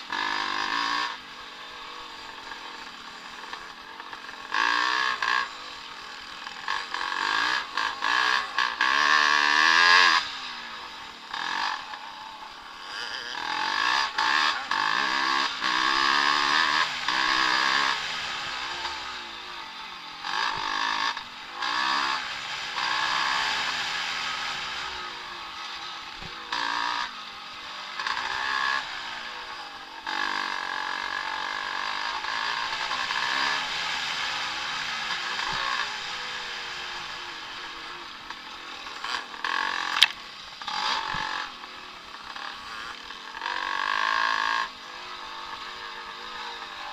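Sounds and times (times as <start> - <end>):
motocross bikes revving: 0.0 - 46.9.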